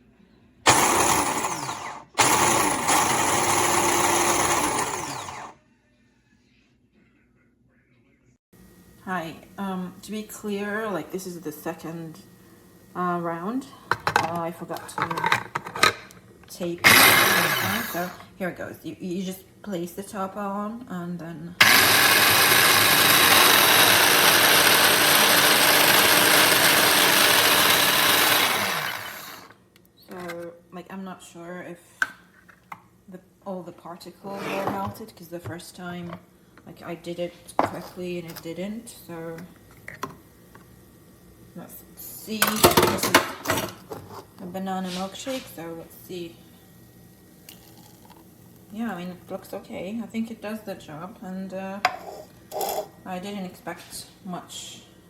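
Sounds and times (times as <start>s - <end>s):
food processor motor running: 0.7s - 5.6s, 16.8s - 18.3s, 21.6s - 29.5s.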